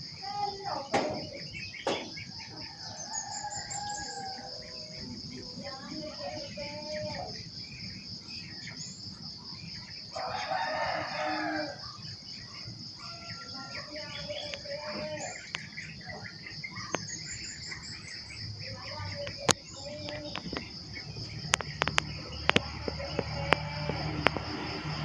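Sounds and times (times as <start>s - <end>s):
high insect drone: 0.0s - 25.0s
rooster crowing: 1.0s - 5.6s, 10.1s - 15.3s, 22.2s - 25.0s.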